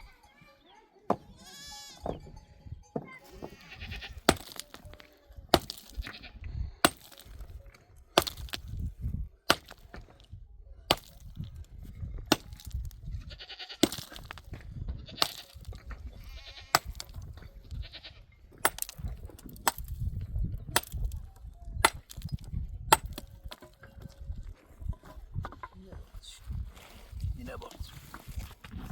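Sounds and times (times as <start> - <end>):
sheep and goats bleating: 1.3 - 2.2, 3.3 - 4.3, 6.0 - 6.5, 13.2 - 13.8, 14.9 - 16.9, 17.7 - 18.3
sharp chopping strikes: 5.5 - 6.1, 6.8 - 7.4, 9.5 - 9.9, 12.3 - 12.9, 18.6 - 20.0, 22.9 - 23.3.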